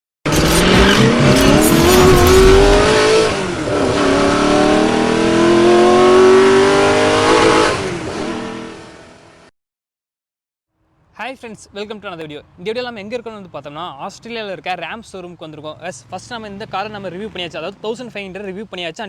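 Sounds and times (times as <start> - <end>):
vehicle engine accelerating: 0.3 - 9.5.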